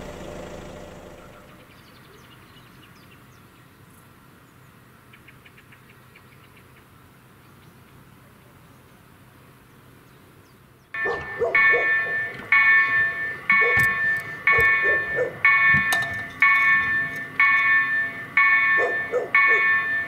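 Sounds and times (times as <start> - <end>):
level crossing bell ringing: 11.0 - 20.0.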